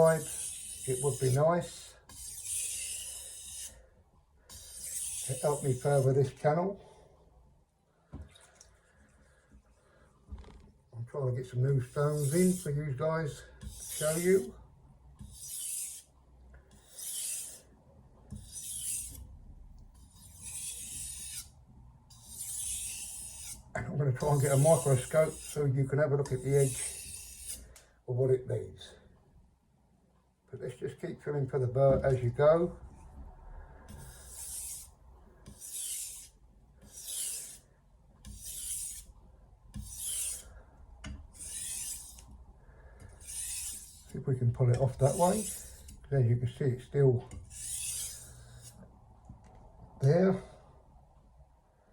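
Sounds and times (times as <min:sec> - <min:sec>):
knife scraping on whetstone: 0:00.0 - 0:03.8, 0:04.5 - 0:06.1, 0:11.8 - 0:12.8, 0:13.6 - 0:14.5, 0:15.2 - 0:16.1, 0:16.7 - 0:17.7, 0:18.3 - 0:19.2, 0:20.0 - 0:21.5, 0:22.1 - 0:23.6, 0:24.2 - 0:25.6, 0:26.3 - 0:27.6, 0:33.9 - 0:39.1, 0:39.7 - 0:40.5, 0:41.3 - 0:42.3, 0:43.1 - 0:44.2, 0:44.8 - 0:46.1, 0:47.3 - 0:48.8.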